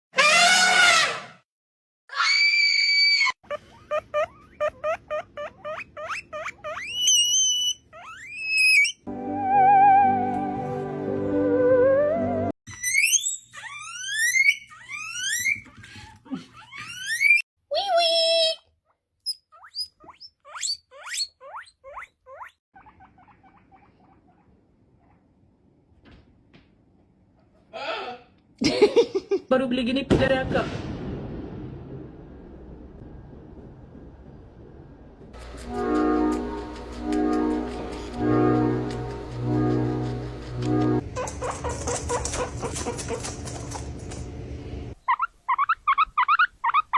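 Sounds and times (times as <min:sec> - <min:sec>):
guinea pig squealing: 0:00.2 - 0:01.3, 0:02.2 - 0:09.1, 0:12.7 - 0:18.6, 0:19.2 - 0:25.2, 0:41.0 - 0:44.2, 0:45.0 - 0:46.9.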